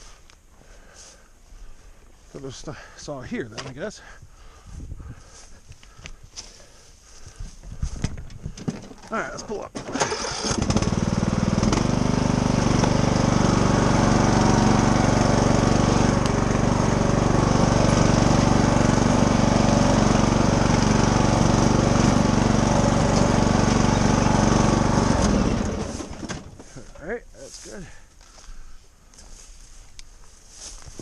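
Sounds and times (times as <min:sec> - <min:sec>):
riding lawnmower engine: 0:06.4 - 0:31.0.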